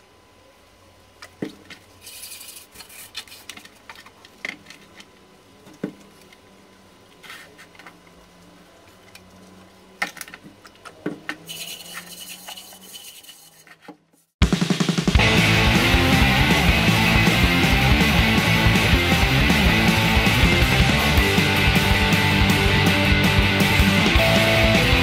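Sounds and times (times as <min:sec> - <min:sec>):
metal scraping and rubbing: 0:02.0 - 0:03.9, 0:11.2 - 0:14.4.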